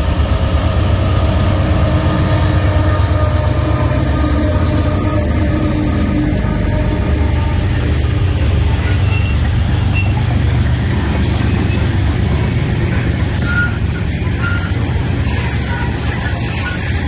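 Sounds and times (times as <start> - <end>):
freight train wheels rumbling on rails: 0.0 - 17.0.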